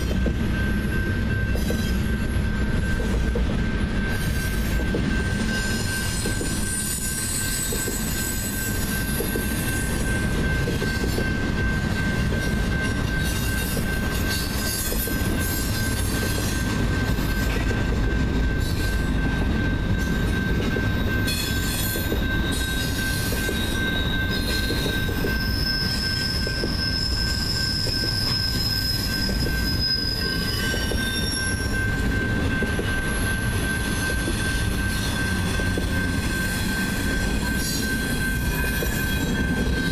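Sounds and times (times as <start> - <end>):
constant high tone: 0.0 - 39.9
train wheels rumbling on rail: 0.0 - 39.9
wheel squeals: 4.0 - 11.4, 12.0 - 39.9.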